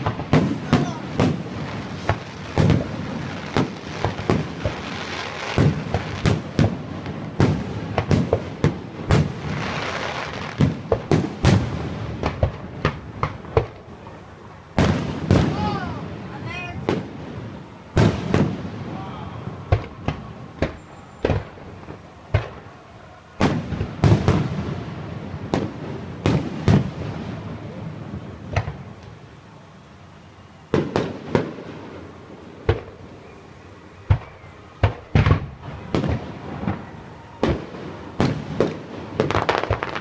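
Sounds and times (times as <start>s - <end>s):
fireworks bangs: 0.0s - 29.3s, 30.6s - 40.0s.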